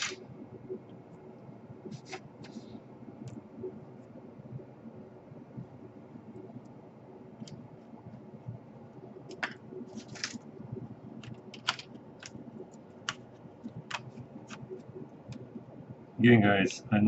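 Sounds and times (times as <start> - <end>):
plastic laptop parts clicking: 9.3 - 10.4, 11.2 - 12.4.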